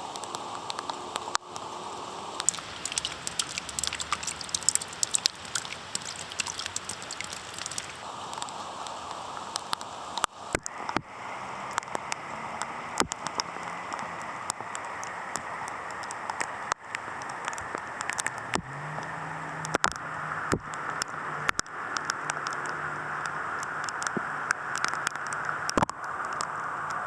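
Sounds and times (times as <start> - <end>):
raindrops clicking close by: 0.0 - 27.0
steady rain hiss: 0.0 - 27.0
low vehicle engine hum: 10.7 - 27.0.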